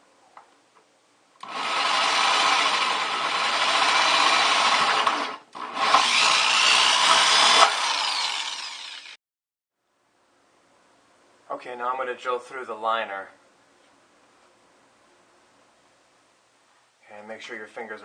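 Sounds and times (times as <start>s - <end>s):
power drill cutting plastic: 1.4s - 9.2s.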